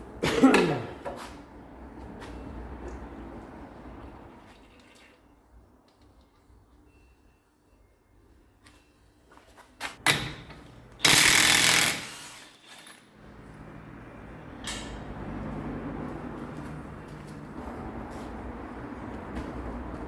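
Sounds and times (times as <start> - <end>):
pneumatic air tool burst: 11.0 - 12.9.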